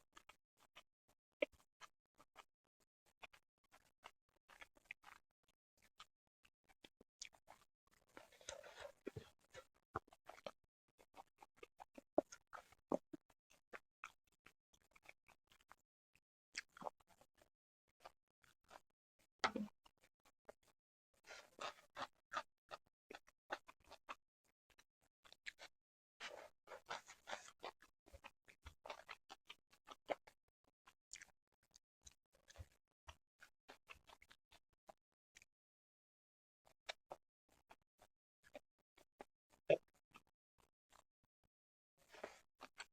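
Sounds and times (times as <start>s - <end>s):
chewing rustle: 4.5s - 5.2s, 6.8s - 15.8s, 19.9s - 30.4s.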